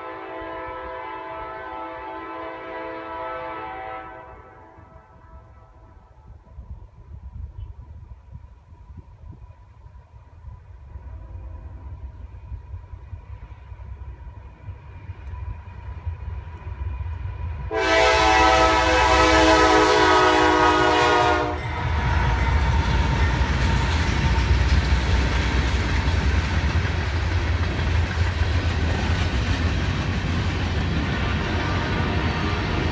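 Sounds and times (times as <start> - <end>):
train horn blast: 0.0 - 6.1, 17.7 - 22.5
train wheels rumbling on rails: 0.0 - 32.9.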